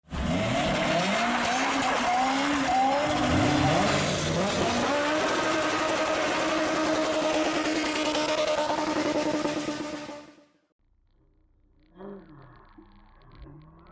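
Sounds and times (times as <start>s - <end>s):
car engine revving: 0.1s - 10.4s.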